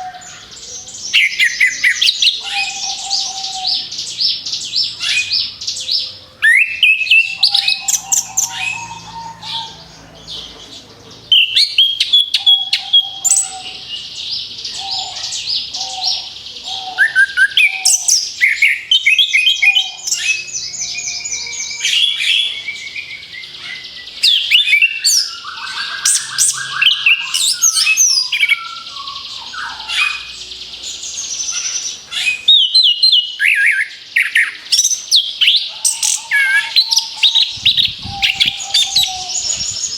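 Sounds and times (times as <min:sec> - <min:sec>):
thrush singing: 0:35.7 - 0:39.9.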